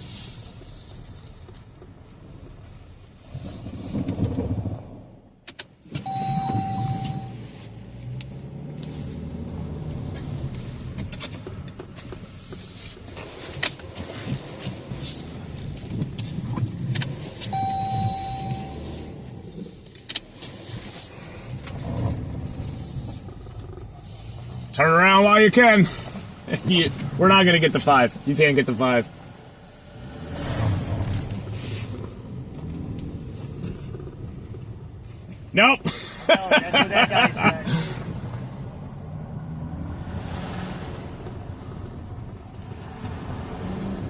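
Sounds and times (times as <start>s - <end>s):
electronic beep: 6.0s - 7.4s, 17.5s - 18.9s
vehicle engine running: 17.5s - 19.9s, 21.1s - 30.2s, 30.8s - 39.6s.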